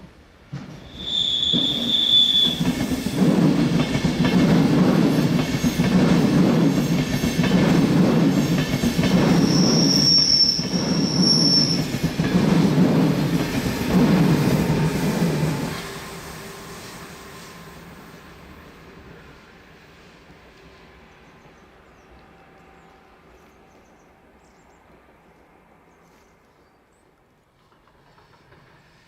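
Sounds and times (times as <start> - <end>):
train wheels rumbling on rails: 0.0 - 29.0
high wheel squeal: 0.9 - 2.8, 9.3 - 12.0.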